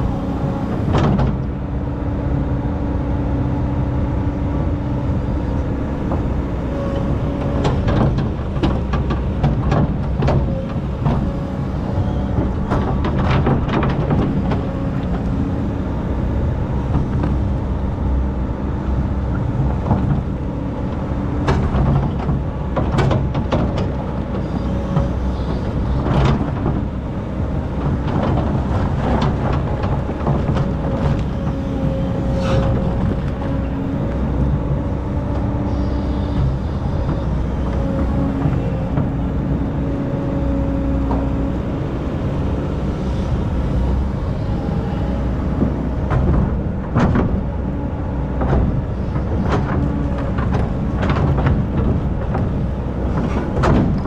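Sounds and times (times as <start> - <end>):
excavator diesel engine running: 0.0 - 54.0
clanks and scrapes: 28.2 - 34.2, 48.4 - 54.0.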